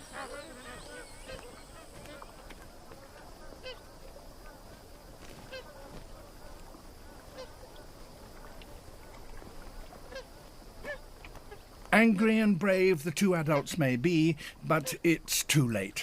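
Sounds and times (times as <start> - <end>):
geese honking: 0.0 - 4.7, 5.4 - 7.8
faint steady background noise: 0.0 - 16.0.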